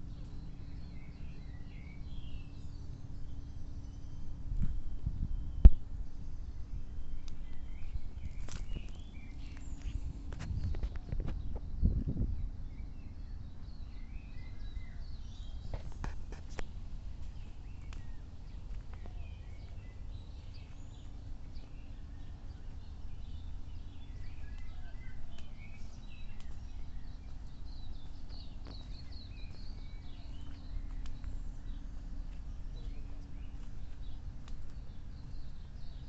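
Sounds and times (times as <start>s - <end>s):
small birds chirping: 0.0s - 36.0s
steady low rumble: 0.0s - 36.0s.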